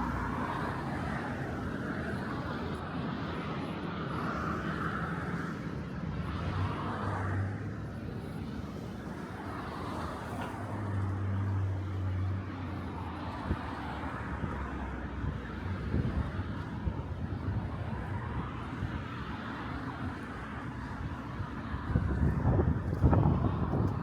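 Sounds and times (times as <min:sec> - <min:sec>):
background traffic: 0:00.0 - 0:24.0.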